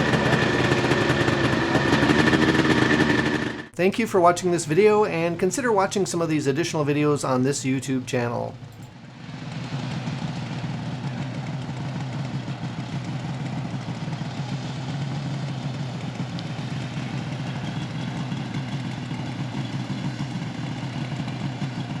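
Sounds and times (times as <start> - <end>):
snowmobile engine idling: 0.0 - 3.7, 9.6 - 22.0.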